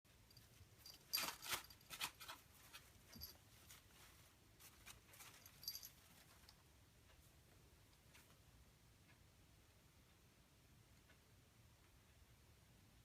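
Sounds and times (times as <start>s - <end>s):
plastic leaves rustling: 0.8s - 6.4s.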